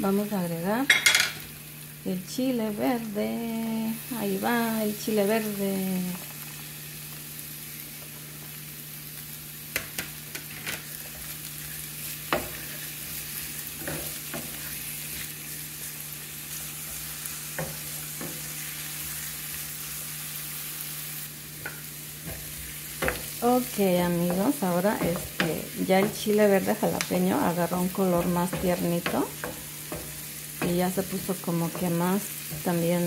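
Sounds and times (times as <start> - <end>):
vegetables sizzling in oil: 0.0 - 33.0
spatula knocking against pan: 28.1 - 30.9.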